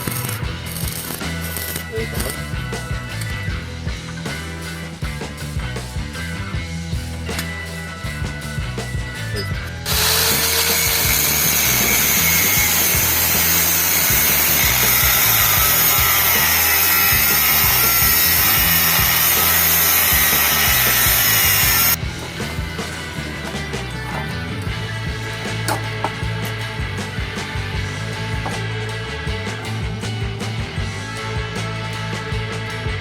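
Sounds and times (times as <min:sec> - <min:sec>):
power tool abrading surface: 0:00.0 - 0:04.4, 0:09.5 - 0:33.0
background music: 0:00.0 - 0:33.0.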